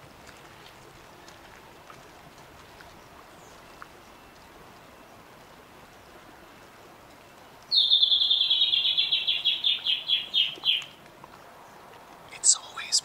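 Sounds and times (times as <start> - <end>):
bird trilling: 7.7 - 11.0.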